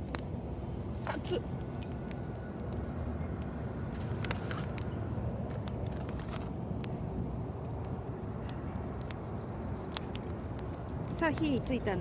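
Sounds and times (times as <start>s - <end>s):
traffic rumble: 0.0s - 12.0s
sharp clicks and ticks: 9.8s - 11.8s.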